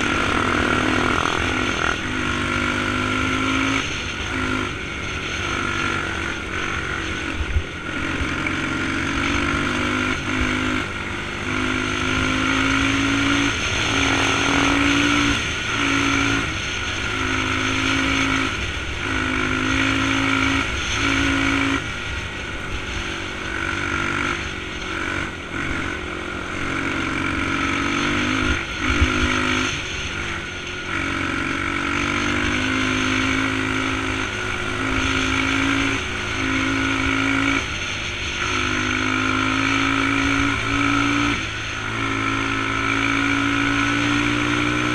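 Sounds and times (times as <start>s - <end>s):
dirt bike engine revving: 0.0s - 44.9s
wind and road noise: 0.0s - 44.9s.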